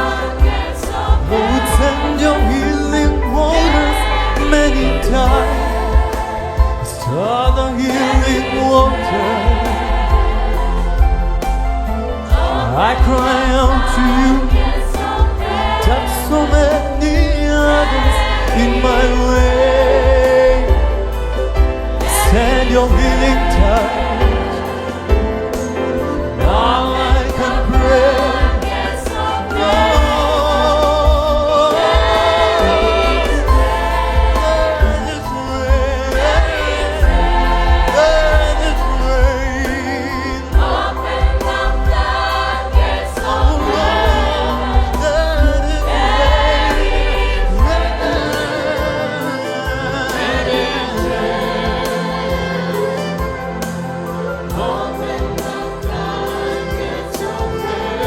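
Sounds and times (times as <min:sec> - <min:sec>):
steady bass: 0:00.0 - 0:57.7
choir singing gospel music: 0:00.0 - 0:58.0.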